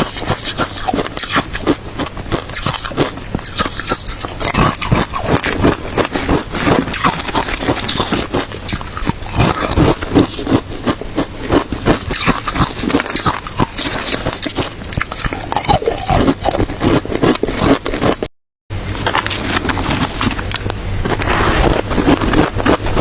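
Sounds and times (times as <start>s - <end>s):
chewing crunchy ice: 0.0s - 18.3s, 19.0s - 23.0s.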